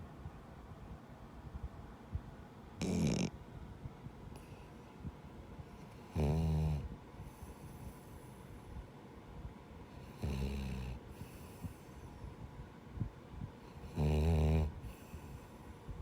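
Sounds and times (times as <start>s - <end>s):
dog snoring: 2.8s - 3.3s, 5.8s - 8.1s, 10.0s - 11.8s, 13.7s - 15.4s
quiet breathing: 4.0s - 16.0s.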